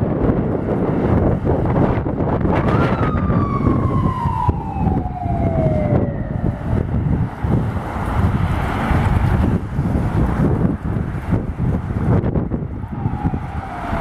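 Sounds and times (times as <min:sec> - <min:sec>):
fire truck siren: 0:00.0 - 0:09.5, 0:12.5 - 0:14.0
traffic: 0:00.0 - 0:14.0
wind: 0:00.0 - 0:14.0.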